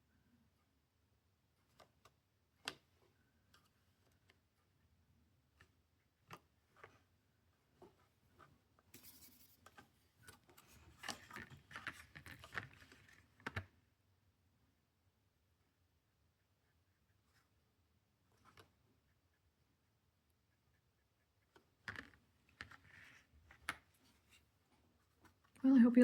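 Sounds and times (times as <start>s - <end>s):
scratchy brushing on paper: 8.9s - 10.0s.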